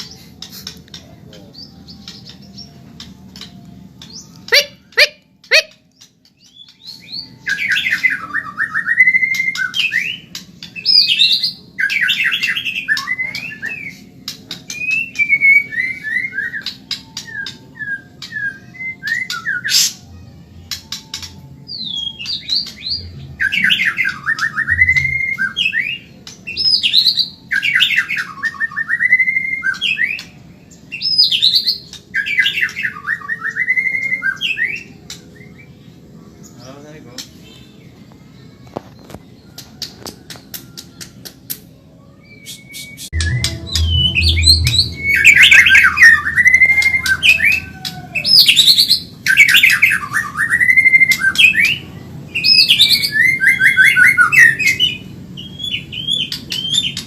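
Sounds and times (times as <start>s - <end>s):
bird singing rattling trills: 42.3s - 57.0s.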